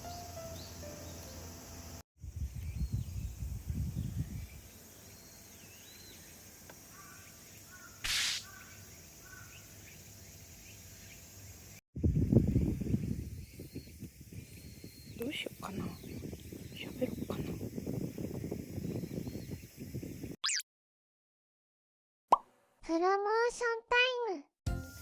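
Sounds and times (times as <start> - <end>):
wind rumbling on microphone: 2.2 - 4.8, 12.0 - 20.4
birds calling: 4.0 - 11.8, 12.8 - 20.4
short hiss: 8.0 - 8.6
background music: 24.7 - 25.0.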